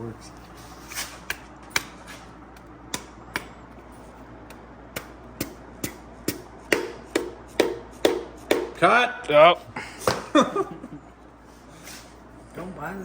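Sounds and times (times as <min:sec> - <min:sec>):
hammer tapping a piston: 0:04.5 - 0:08.8.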